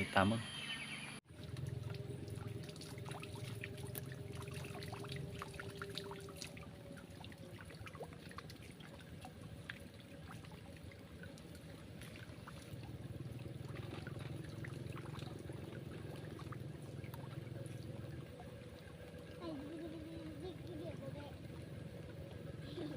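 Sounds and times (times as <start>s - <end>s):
water trickling and dripping: 1.3s - 22.9s.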